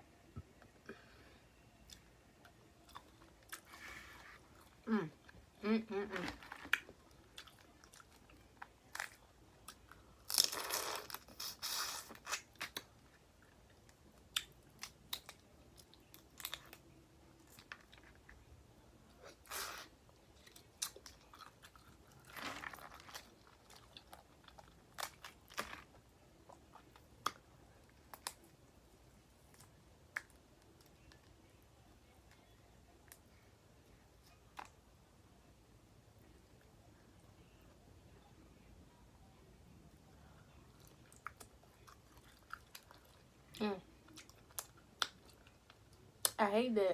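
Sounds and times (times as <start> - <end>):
chewing: 6.2 - 18.4, 19.1 - 28.4, 40.6 - 46.4.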